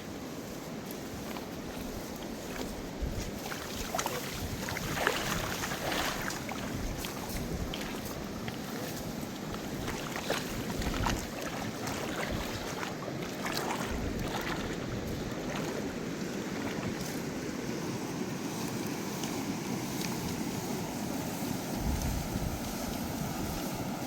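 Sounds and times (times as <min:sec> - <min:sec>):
water splashing: 0:01.3 - 0:18.0
river rushing: 0:01.4 - 0:24.0.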